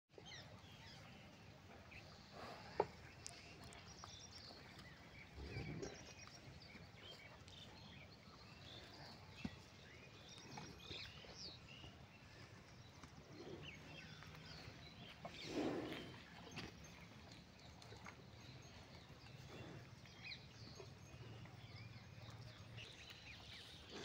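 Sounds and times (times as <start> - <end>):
small birds chirping: 0.1 - 24.0.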